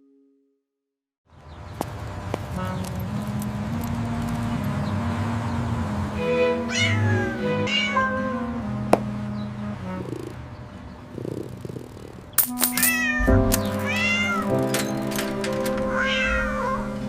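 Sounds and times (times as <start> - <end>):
background music: 2.6 - 11.8, 12.4 - 17.0
cat meowing: 6.7 - 8.5, 12.9 - 14.6, 15.9 - 17.0.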